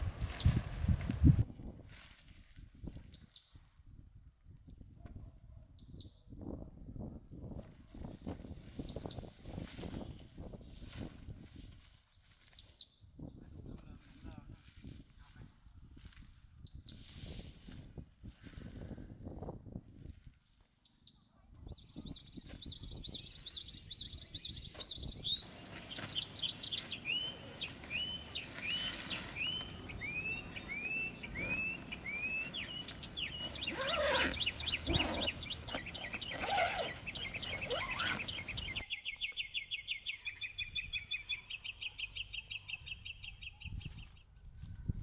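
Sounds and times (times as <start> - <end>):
small birds chirping and trilling: 7.3 - 10.0, 20.7 - 44.3.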